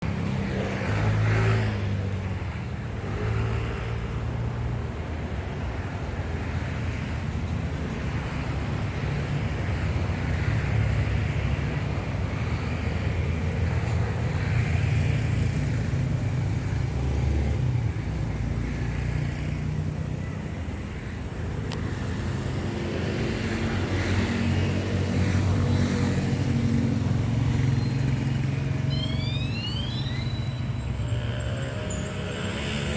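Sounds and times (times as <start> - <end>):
aircraft engines rumbling: 19.5 - 32.9.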